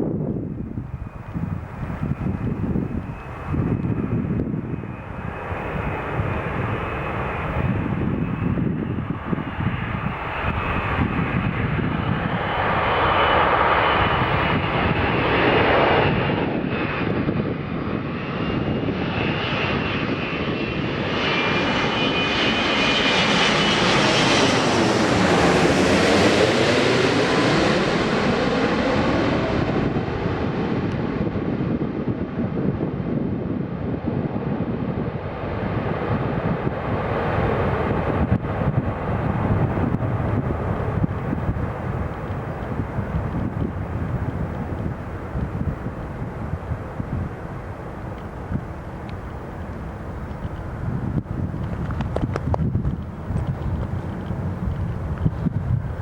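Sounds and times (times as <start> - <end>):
jet engines roaring with whine: 0.0 - 56.0
jet passing swoosh: 0.8 - 33.7.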